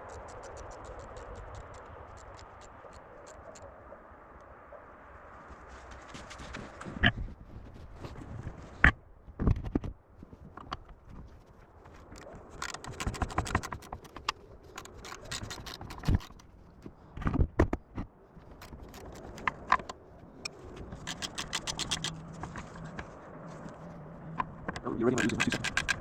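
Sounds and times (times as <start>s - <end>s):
rapid clicks of hand tools on metal: 12.2s - 16.5s, 18.4s - 22.6s, 25.1s - 26.0s.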